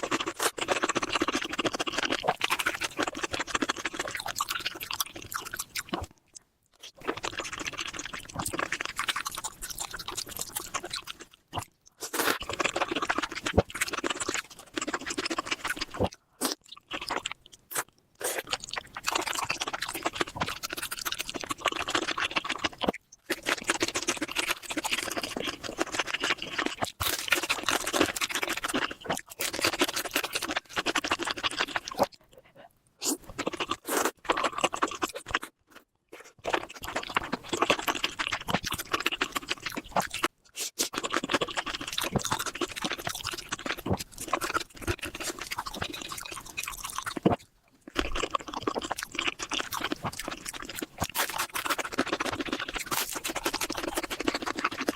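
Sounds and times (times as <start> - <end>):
person chewing and crunching food: 0.0 - 54.9.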